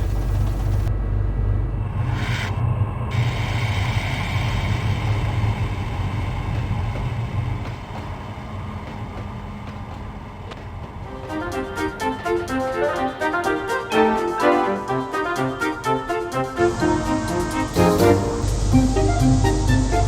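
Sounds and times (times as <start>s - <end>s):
train rumbling on rails: 0.0s - 20.0s
piano music: 11.1s - 20.0s.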